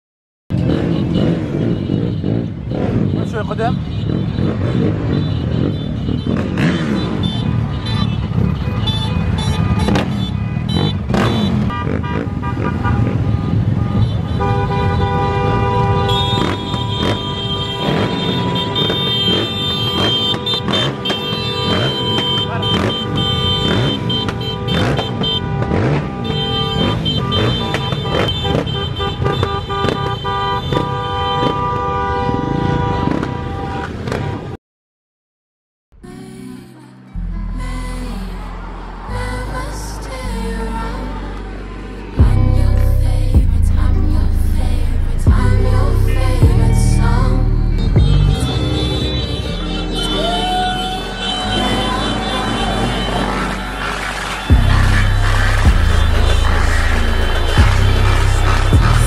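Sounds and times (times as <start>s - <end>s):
motorcycle engines running: 0.5s - 14.5s, 15.6s - 31.7s, 41.4s - 59.0s
vehicle horns honking: 0.5s - 34.6s, 45.1s - 59.0s
engine revving up: 41.7s - 59.0s
short horn toots: 46.1s - 59.0s.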